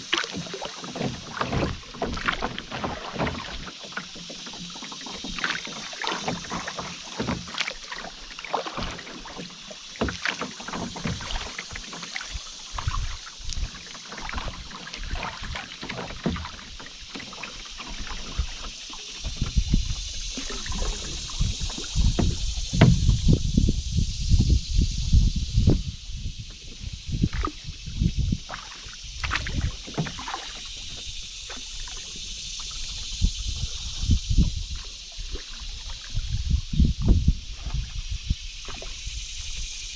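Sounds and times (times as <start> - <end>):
paddle splashing: 0.0 - 23.5, 26.4 - 39.9
water lapping against hull: 0.0 - 39.9.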